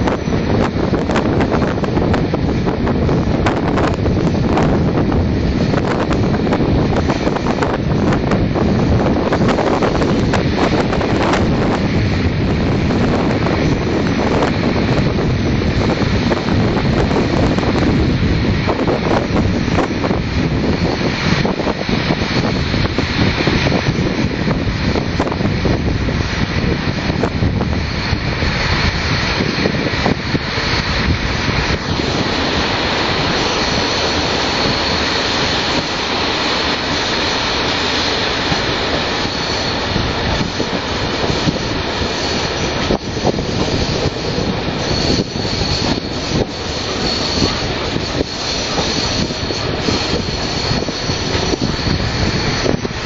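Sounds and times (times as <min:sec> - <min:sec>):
train wheels rumbling on rails: 0:00.0 - 0:53.0
high wheel squeal: 0:27.8 - 0:53.0.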